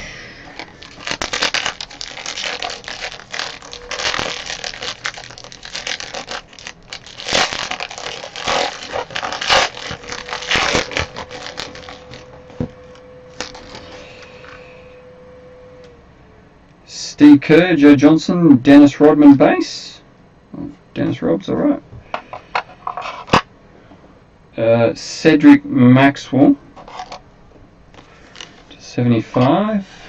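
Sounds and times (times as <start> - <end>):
wrapper crinkling: 0.5 - 14.6, 28.0 - 28.7
cardboard packaging being torn: 0.6 - 14.0.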